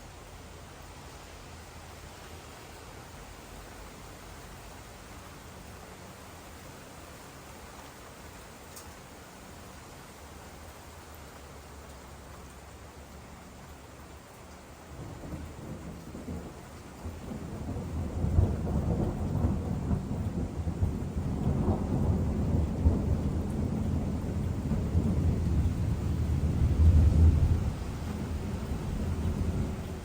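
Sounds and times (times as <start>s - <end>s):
rolling thunder: 15.0s - 30.0s.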